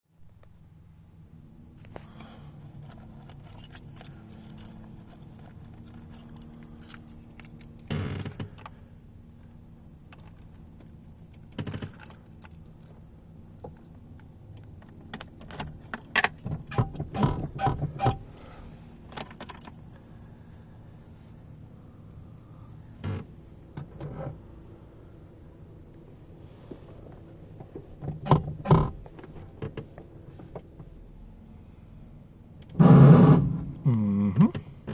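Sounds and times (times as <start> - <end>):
faint steady hum: 0.2 - 34.9
keys jangling: 2.8 - 7.9, 11.6 - 13.0, 19.2 - 20.0.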